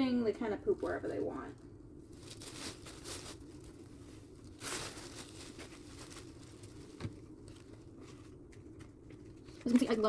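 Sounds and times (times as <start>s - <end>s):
bedding and cardboard rustling: 2.1s - 10.0s.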